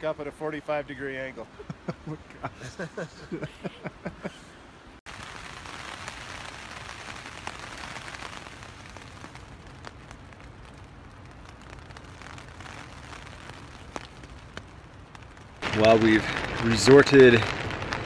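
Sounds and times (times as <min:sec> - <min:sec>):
heavy rain on a tent: 0:00.0 - 0:04.3, 0:05.0 - 0:18.0
raindrops ticking sharply: 0:05.1 - 0:18.0.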